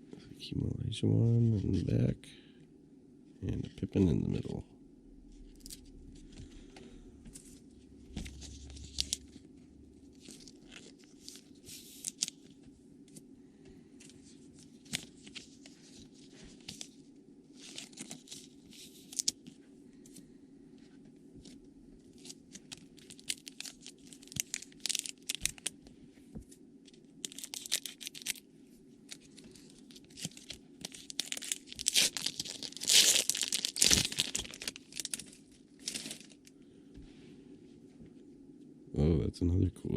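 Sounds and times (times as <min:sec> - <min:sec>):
low steady hum: 0:00.0 - 0:39.9
wrappers torn and crinkled: 0:08.2 - 0:09.4, 0:10.1 - 0:12.4, 0:14.6 - 0:19.4, 0:22.1 - 0:25.8, 0:27.2 - 0:28.4, 0:29.1 - 0:36.5.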